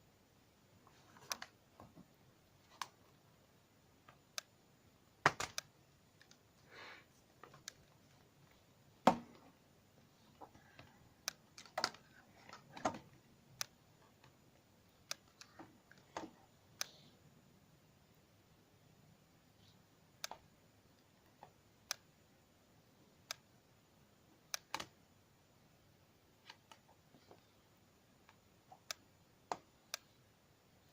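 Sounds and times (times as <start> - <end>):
plastic packaging clicks and taps: 5.2 - 5.7.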